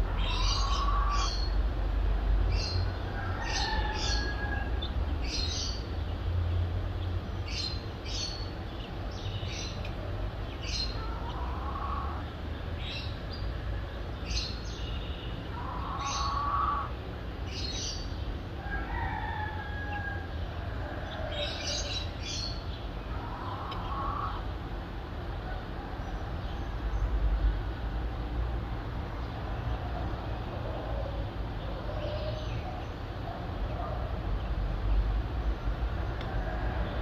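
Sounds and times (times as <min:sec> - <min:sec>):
longer lower bird calls: 0:00.0 - 0:01.6, 0:14.2 - 0:18.1
distant city traffic rumble: 0:00.0 - 0:37.0.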